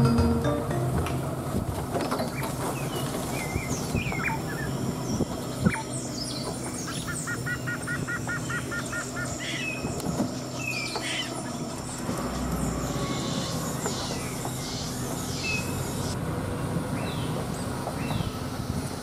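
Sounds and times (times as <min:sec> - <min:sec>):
forest birds chirping and whistling: 0:02.2 - 0:16.2, 0:16.9 - 0:18.5.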